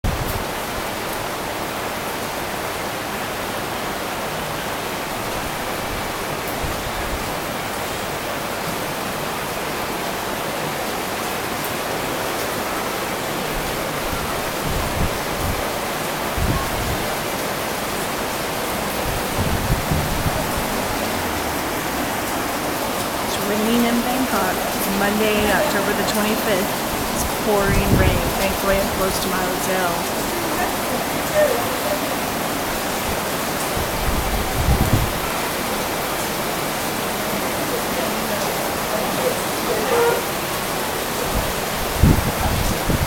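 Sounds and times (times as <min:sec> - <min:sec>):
heavy rain: 0:00.0 - 0:43.0
low thumps: 0:19.1 - 0:21.9.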